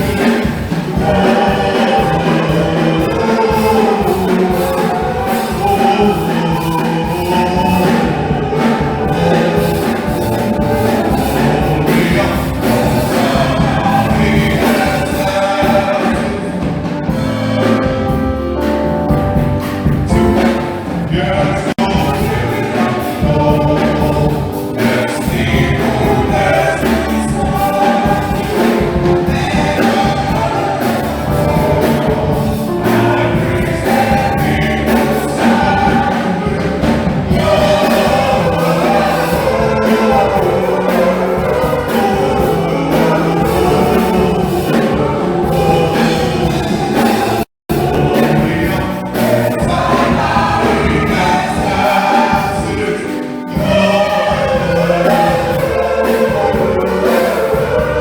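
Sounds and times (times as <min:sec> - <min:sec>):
choir singing with instruments: 0:00.0 - 0:58.0.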